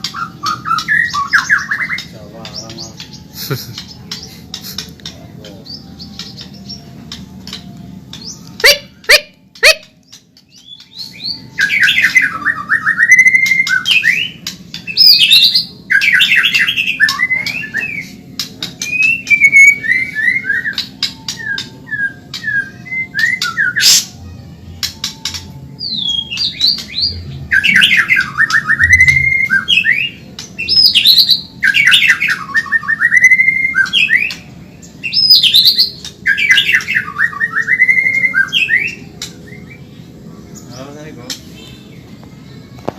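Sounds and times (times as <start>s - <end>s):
sharp clicking bird notes: 6.1s - 11.0s, 24.8s - 25.6s.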